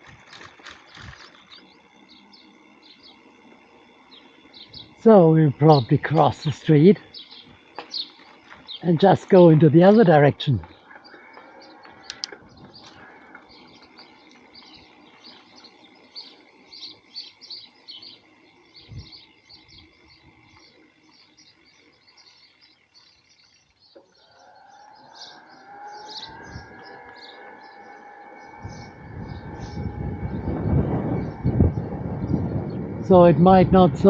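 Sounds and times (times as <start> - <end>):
small birds chirping: 0.1 - 34.0
approaching vehicle whine: 23.4 - 34.0.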